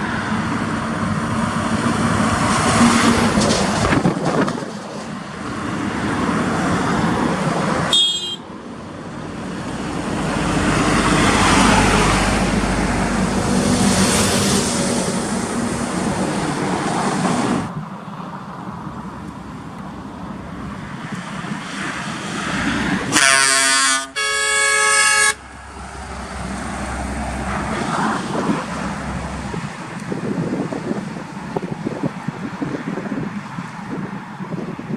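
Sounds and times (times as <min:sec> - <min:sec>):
heavy trucks passing: 0:00.0 - 0:34.9
truck air horn blasts: 0:07.9 - 0:08.5, 0:23.1 - 0:25.4.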